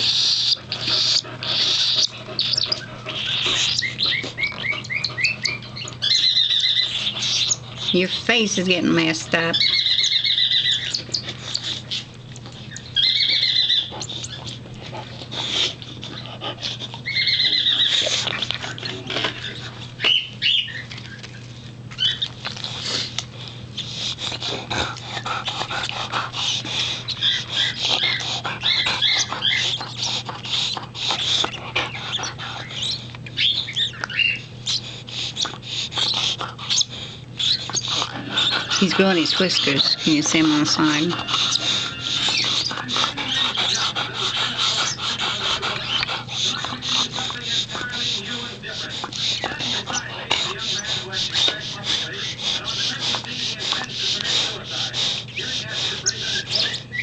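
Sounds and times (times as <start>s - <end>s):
rapid bird chirps and clicks: 0.0s - 8.2s, 9.5s - 14.6s, 17.0s - 19.0s, 20.0s - 23.3s, 27.1s - 47.1s
steady low hum: 0.0s - 57.0s
baby bird begging calls: 0.1s - 8.4s, 9.5s - 11.7s, 12.7s - 14.4s, 17.1s - 18.0s.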